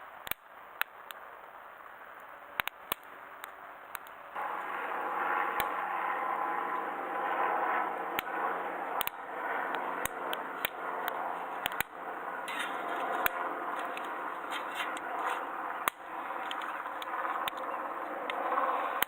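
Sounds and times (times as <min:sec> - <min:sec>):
wood fire crackling and popping: 0:00.1 - 0:19.0
fire hissing: 0:07.8 - 0:19.0.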